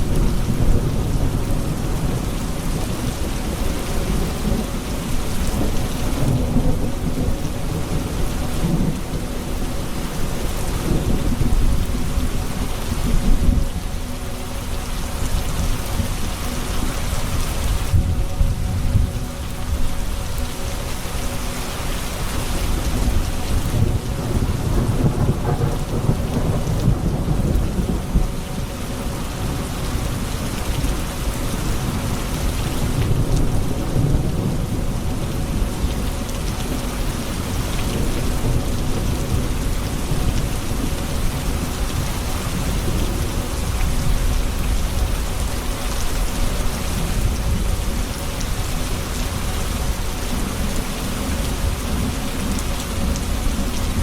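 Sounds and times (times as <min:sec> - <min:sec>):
rain falling: 0:00.0 - 0:54.0
thunder rumbling: 0:22.2 - 0:54.0.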